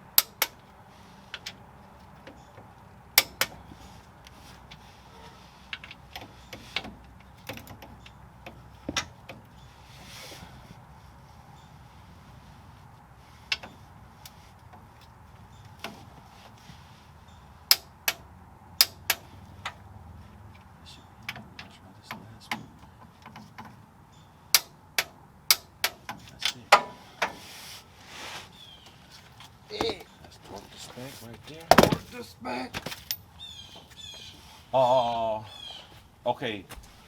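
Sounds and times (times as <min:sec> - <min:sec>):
metal tools clinking and clanking: 0:32.8 - 0:33.4.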